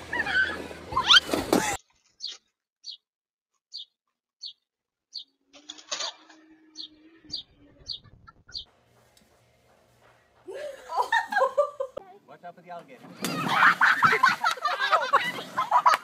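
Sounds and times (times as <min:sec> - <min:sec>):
bird chirping: 0:02.2 - 0:03.1, 0:03.7 - 0:05.5, 0:06.1 - 0:08.8.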